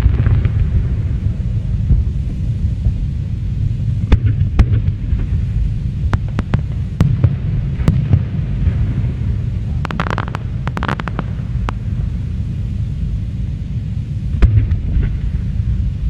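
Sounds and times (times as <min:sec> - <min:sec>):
low rumble of fireworks: 0:00.0 - 0:16.0
fireworks cracks and pops: 0:06.1 - 0:08.2, 0:09.8 - 0:12.0.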